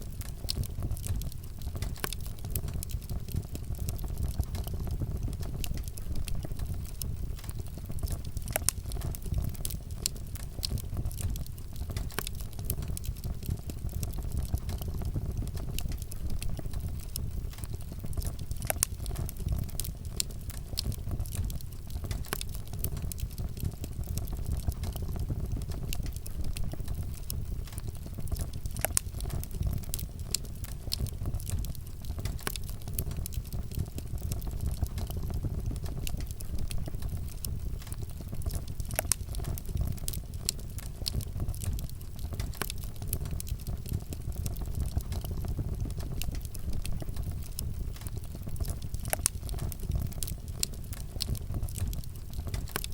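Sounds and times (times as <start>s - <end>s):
campfire crackling and popping: 0.0s - 52.9s.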